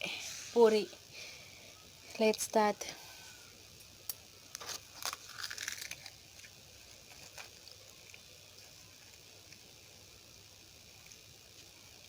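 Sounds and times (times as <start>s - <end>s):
faint crackling rustle: 4.5s - 9.7s.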